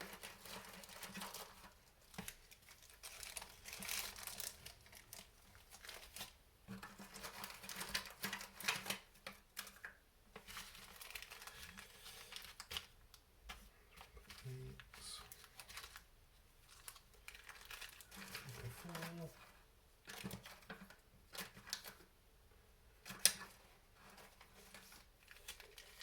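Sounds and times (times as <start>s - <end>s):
plastic bags crinkling: 0.0s - 9.8s, 10.4s - 13.0s, 14.2s - 19.4s, 24.4s - 26.0s.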